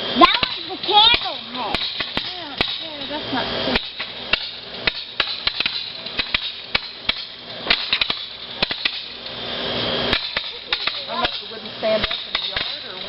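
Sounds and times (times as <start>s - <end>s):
fireworks hiss: 0.0s - 13.0s
fireworks popping and crackling: 10.0s - 13.0s.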